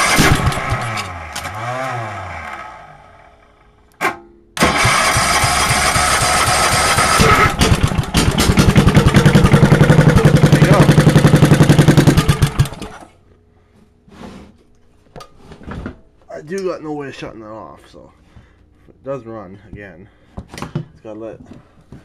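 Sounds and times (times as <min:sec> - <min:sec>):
electric starter cranking: 0:00.0 - 0:02.8, 0:04.6 - 0:13.1
engine firing in fast pulse: 0:00.0 - 0:03.3, 0:04.6 - 0:13.0.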